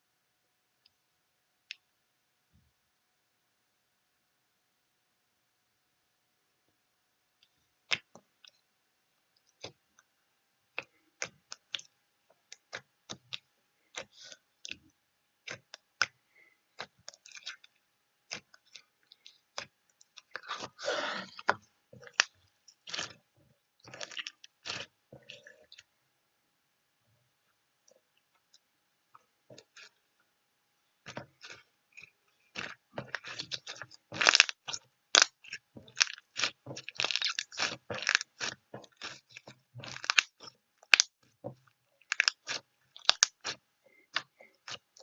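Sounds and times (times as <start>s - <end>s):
sharp clicks and crunches: 31.1s - 41.2s, 42.0s - 45.0s.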